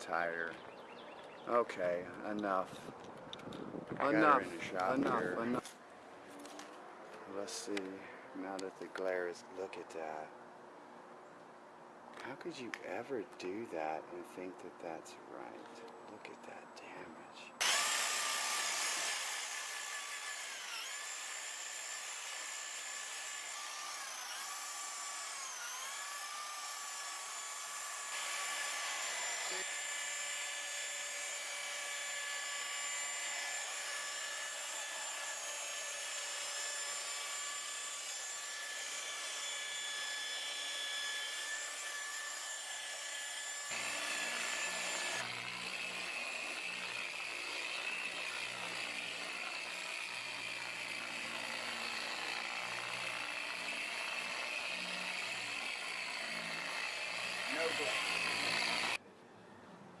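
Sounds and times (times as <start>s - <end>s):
car polisher whining: 57.5s - 59.0s.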